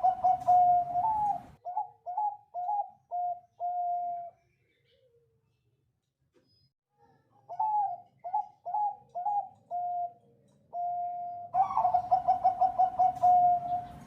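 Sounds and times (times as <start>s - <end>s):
dove cooing: 0.0s - 4.4s, 7.4s - 14.0s.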